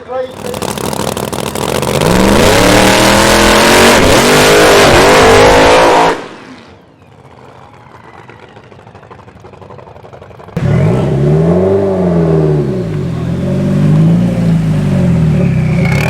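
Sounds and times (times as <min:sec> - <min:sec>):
car engine accelerating hard: 0:00.3 - 0:06.4, 0:10.6 - 0:16.0.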